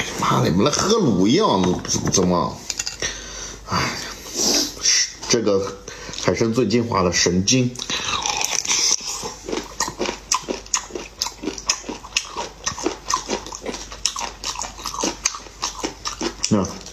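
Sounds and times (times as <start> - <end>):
wet smacking chewing: 7.8 - 16.9.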